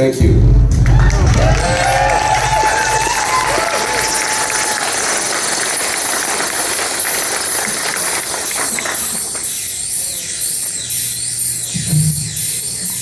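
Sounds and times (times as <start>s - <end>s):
hissing electronic noise: 5.5s - 13.0s
high swooping synth sweeps: 5.8s - 13.0s
low synth drone: 6.3s - 13.0s.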